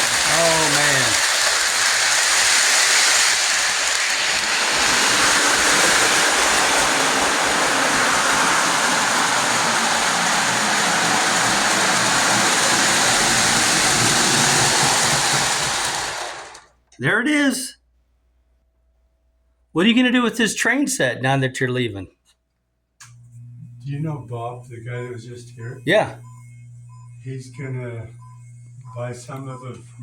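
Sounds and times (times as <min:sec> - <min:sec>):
model train running on track: 0:00.0 - 0:16.7.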